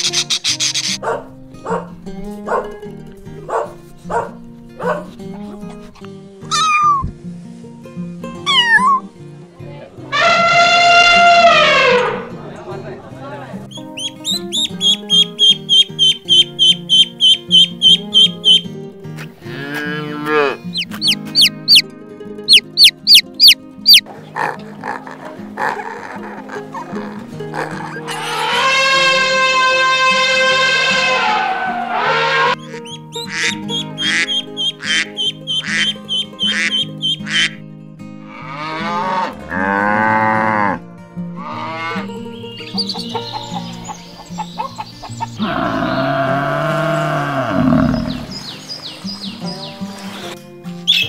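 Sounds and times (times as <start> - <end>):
background music: 0.0 - 51.0
cow mooing: 10.2 - 12.3, 19.4 - 21.8, 27.6 - 32.8, 38.3 - 42.1, 45.4 - 48.3
duckling peeping: 13.7 - 18.6, 20.7 - 21.9, 22.5 - 24.0, 32.6 - 37.5
chick peeping: 14.0 - 18.6, 20.7 - 21.8, 22.5 - 24.0, 32.6 - 37.2, 42.7 - 45.4.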